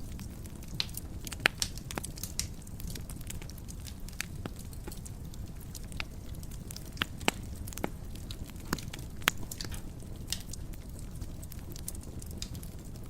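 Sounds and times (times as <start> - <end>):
wood fire burning: 0.0 - 13.0.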